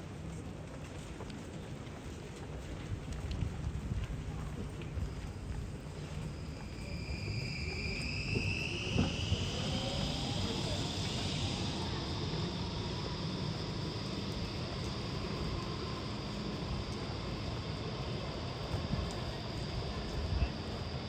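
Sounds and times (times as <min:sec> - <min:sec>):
tyres hissing on wet street: 0:02.9 - 0:21.0
electric motor whine: 0:06.8 - 0:21.0.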